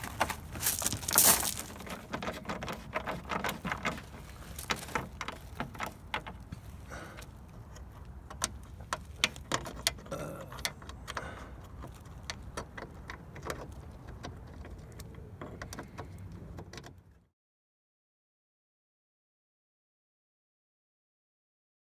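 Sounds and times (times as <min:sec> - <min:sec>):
light clicks and taps of parts: 0:02.2 - 0:17.0.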